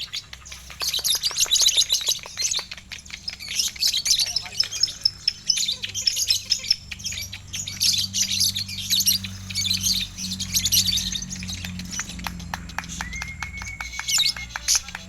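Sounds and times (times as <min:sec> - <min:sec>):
lovebirds chattering: 0:00.0 - 0:15.0
regular clicks: 0:10.9 - 0:15.0.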